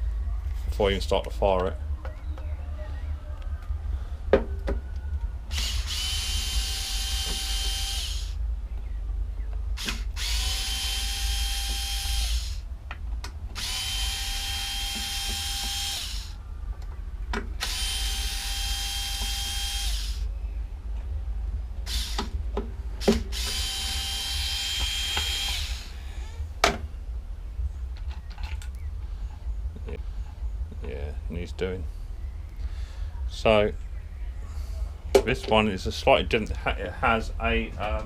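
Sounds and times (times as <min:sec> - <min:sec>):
low hum: 0:00.0 - 0:38.0
power drill whining: 0:05.5 - 0:08.4, 0:09.8 - 0:12.7, 0:13.6 - 0:16.4, 0:17.6 - 0:20.3, 0:21.9 - 0:22.3, 0:23.0 - 0:26.0.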